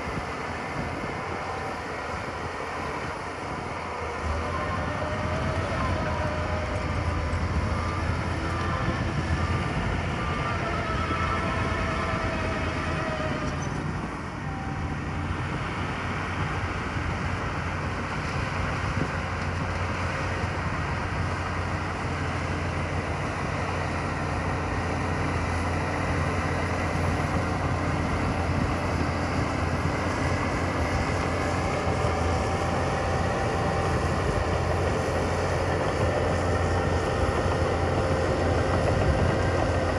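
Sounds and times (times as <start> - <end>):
faint whining tones: 0.0 - 17.1
heavy machinery engines running: 0.0 - 39.9.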